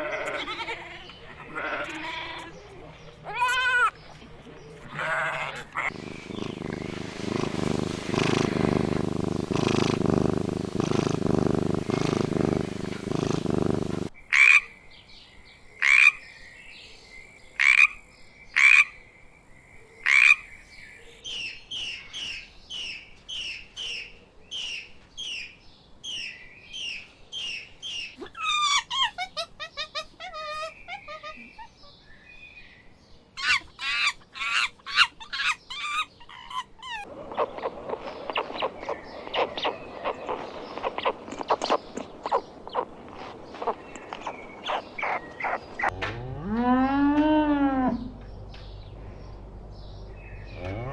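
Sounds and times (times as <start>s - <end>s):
pulsing chorus of animal calls: 4.9s - 14.1s, 37.0s - 45.9s
short repeated animal calls: 4.9s - 14.6s, 37.0s - 45.9s.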